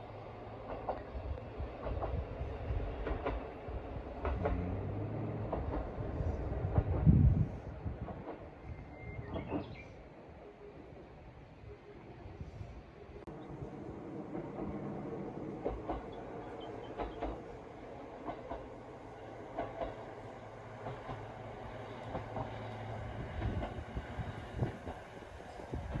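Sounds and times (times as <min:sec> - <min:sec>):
train running hum: 0:00.0 - 0:26.0
wheels clacking over rail joints: 0:02.9 - 0:07.2, 0:14.3 - 0:26.0.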